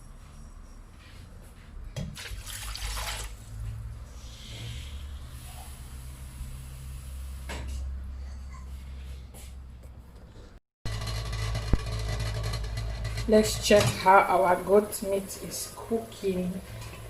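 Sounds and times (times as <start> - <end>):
water pouring into a pot: 2.2 - 3.6.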